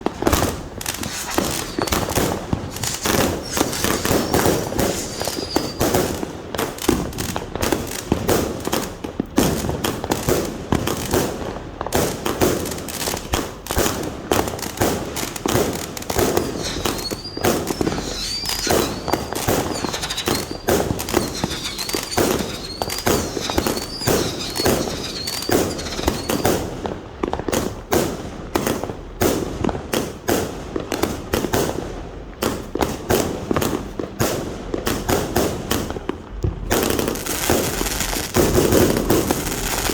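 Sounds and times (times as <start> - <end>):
fireworks firing rapid bursts: 0.0 - 39.9
wavering high whistle: 1.0 - 6.3, 16.2 - 26.7.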